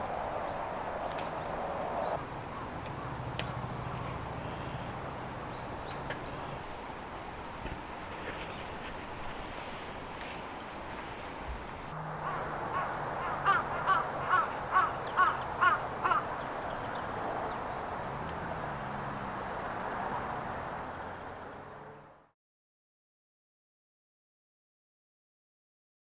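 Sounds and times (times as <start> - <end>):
crow cawing: 12.2 - 16.4.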